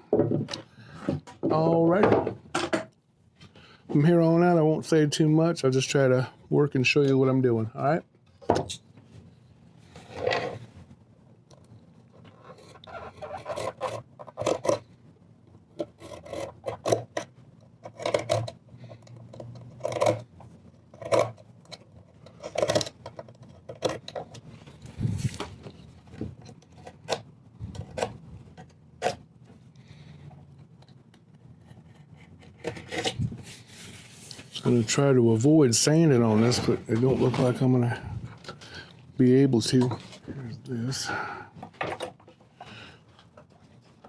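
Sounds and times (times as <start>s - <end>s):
hand tool scraping wood: 12.4s - 14.8s.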